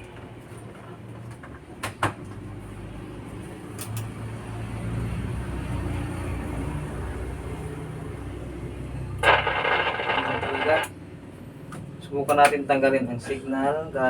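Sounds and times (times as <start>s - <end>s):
amplifier humming through speaker: 9.2s - 11.0s
speaker crackles: 9.2s - 11.0s.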